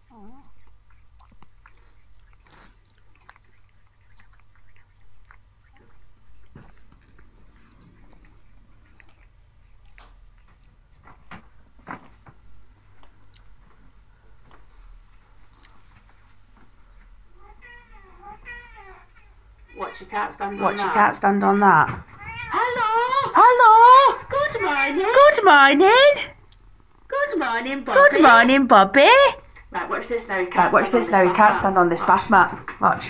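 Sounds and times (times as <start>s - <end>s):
cat crunching dry treats: 0.1s - 14.2s.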